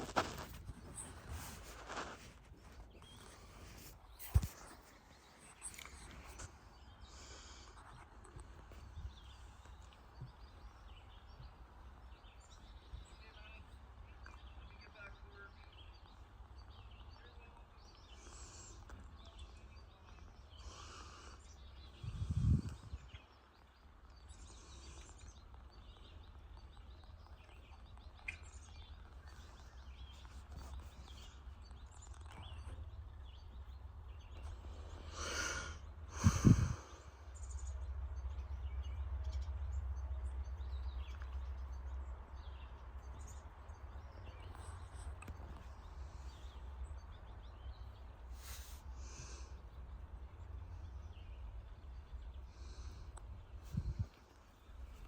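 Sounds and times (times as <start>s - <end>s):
birds chirping: 0.0s - 55.0s
steady low rumble: 21.9s - 23.2s.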